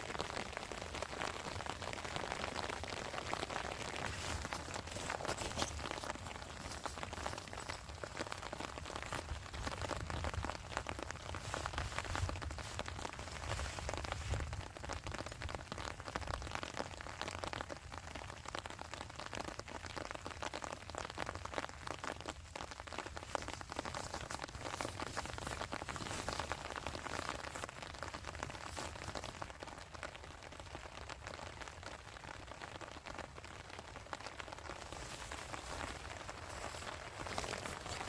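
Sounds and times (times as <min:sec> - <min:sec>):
heavy rain pattering: 0:00.0 - 0:38.0.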